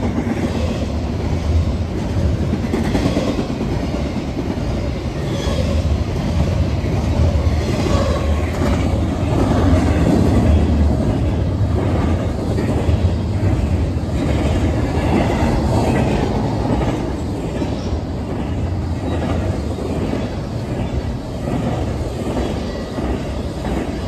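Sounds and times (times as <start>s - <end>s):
freight train wheels rumbling on rail: 0.0s - 24.0s.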